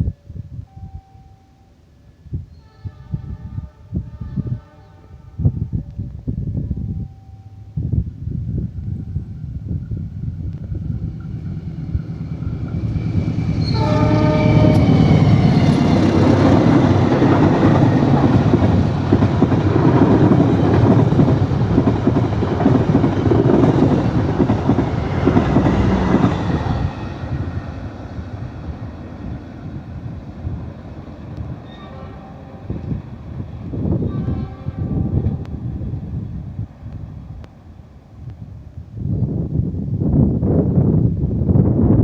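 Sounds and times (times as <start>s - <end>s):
train rumble and wheel clatter: 2.3s - 42.0s
train horn: 2.5s - 5.8s, 12.9s - 18.9s, 31.6s - 33.0s, 33.8s - 35.6s.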